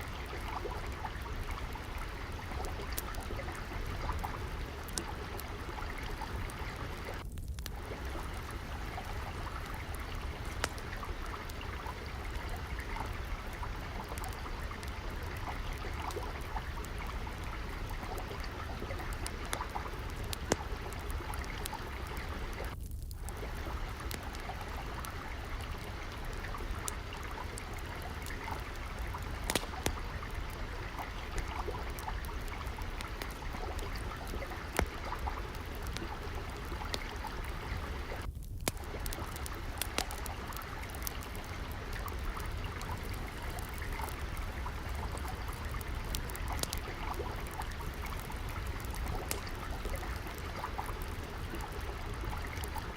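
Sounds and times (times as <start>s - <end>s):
water trickling: 0.0s - 52.9s
wood fire crackling: 0.0s - 52.9s.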